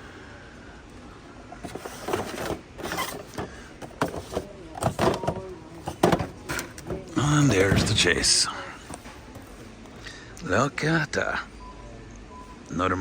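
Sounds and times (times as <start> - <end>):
packaging rustling and scraping: 1.6 - 9.9.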